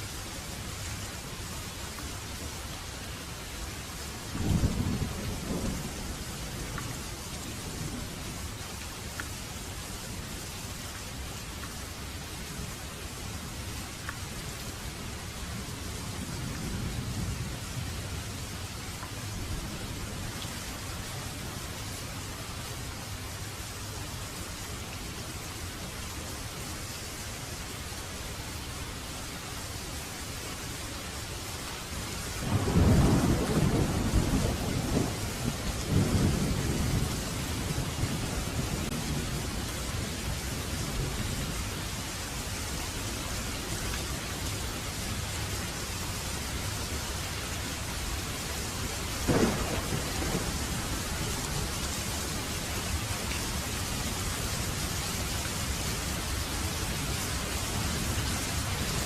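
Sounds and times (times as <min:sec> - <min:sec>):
heavy rain: 0:00.0 - 0:59.0
rolling thunder: 0:32.4 - 0:39.5, 0:49.2 - 0:51.7
sharp thunder crack: 0:49.3 - 0:50.8.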